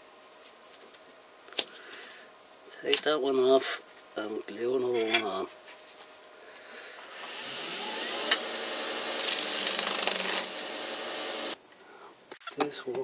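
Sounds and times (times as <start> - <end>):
power tool motor running: 6.9 - 11.6.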